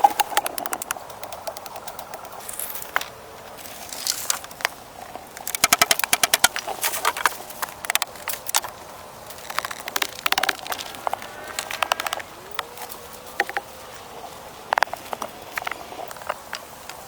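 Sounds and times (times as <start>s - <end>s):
quick run of clicks: 0.0s - 3.2s, 5.3s - 12.7s.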